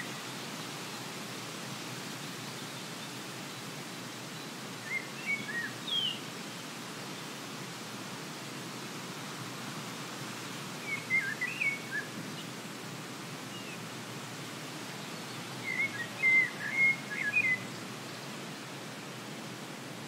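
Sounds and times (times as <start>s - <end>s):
outdoor ambience hiss: 0.0s - 20.0s
songbird warbling: 15.6s - 17.7s.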